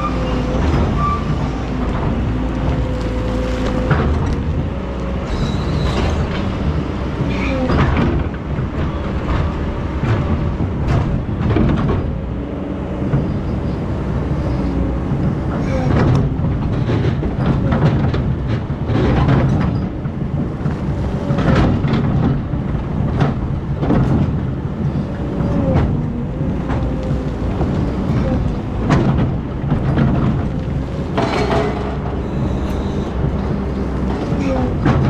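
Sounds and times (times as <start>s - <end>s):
excavator engine rumble: 0.0s - 35.0s
metal clanks and knocks: 15.6s - 35.0s
hydraulic whine: 30.4s - 35.0s.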